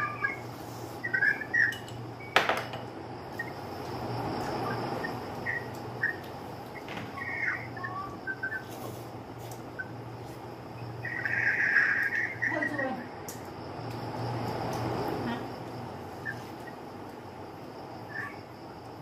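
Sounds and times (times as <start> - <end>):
high bird-like chirps: 0.0 - 2.4, 4.5 - 8.9, 10.8 - 12.8, 18.1 - 18.4
steady low hum: 0.0 - 19.0.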